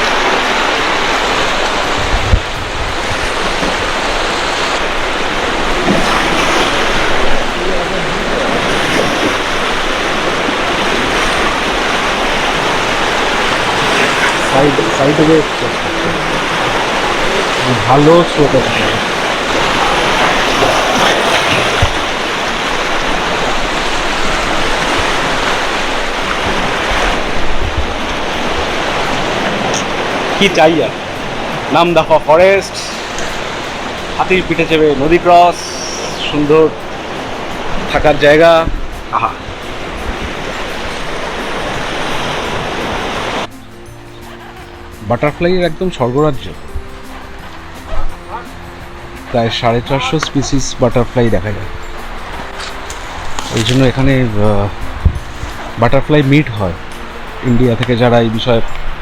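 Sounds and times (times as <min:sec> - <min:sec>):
rushing river water: 0:00.0 - 0:59.0
low thumps: 0:01.5 - 0:14.5, 0:53.0 - 0:55.7.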